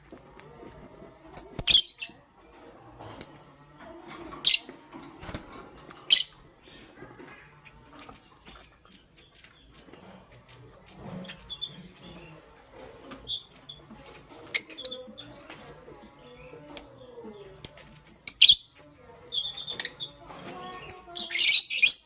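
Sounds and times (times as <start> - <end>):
lovebirds chirping: 0.0 - 22.0.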